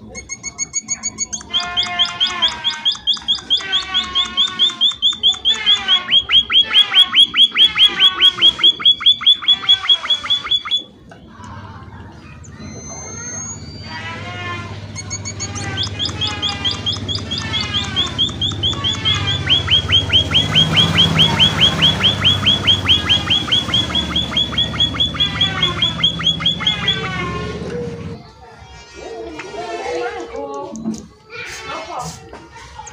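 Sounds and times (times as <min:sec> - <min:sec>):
finch chirping: 0:00.1 - 0:10.9, 0:15.0 - 0:27.2.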